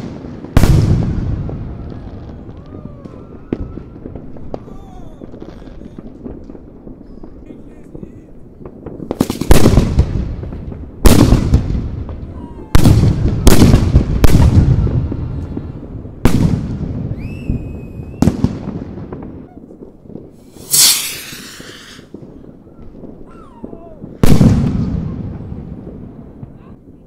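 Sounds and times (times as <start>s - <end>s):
rising firework whistle: 0.0s - 7.4s, 12.2s - 15.7s, 16.9s - 18.8s, 19.4s - 25.2s
firework shells bursting: 20.2s - 22.4s
loud hiss: 20.4s - 22.1s.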